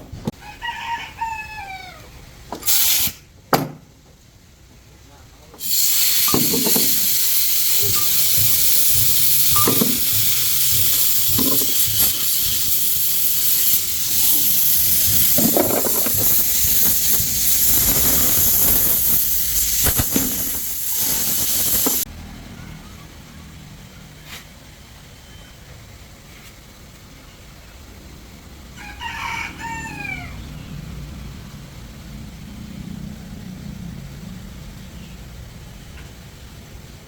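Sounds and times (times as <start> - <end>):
loud hiss of air jet: 2.6 - 3.3, 5.6 - 22.1.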